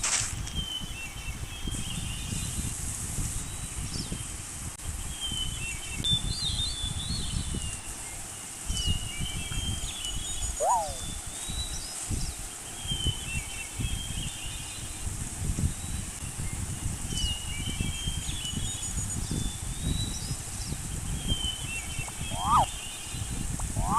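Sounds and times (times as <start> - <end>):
small birds chirping and trilling: 0.5 - 23.9
high insect-like hiss: 1.7 - 5.0, 5.6 - 23.9
whistled bird call: 8.7 - 11.7, 21.3 - 23.9.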